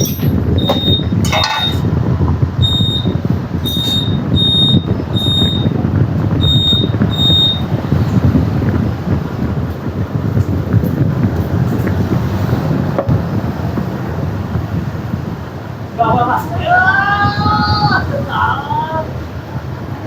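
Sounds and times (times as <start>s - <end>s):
high-pitched electronic beeps: 0.0s - 1.8s, 2.6s - 5.8s, 6.4s - 7.7s
low mechanical rumble: 0.0s - 16.8s.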